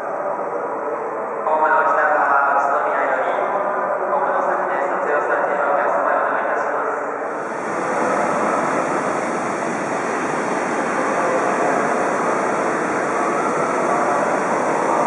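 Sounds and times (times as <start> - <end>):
train rushing along track: 7.0 - 15.0.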